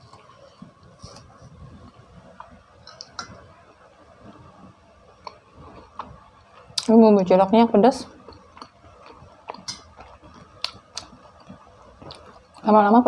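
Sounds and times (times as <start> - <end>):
soft chewing: 0.0 - 3.5, 5.1 - 6.9, 8.1 - 12.8.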